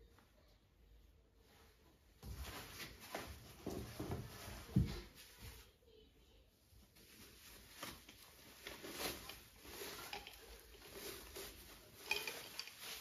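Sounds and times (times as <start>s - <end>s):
household items clinking and knocking: 7.0s - 13.0s.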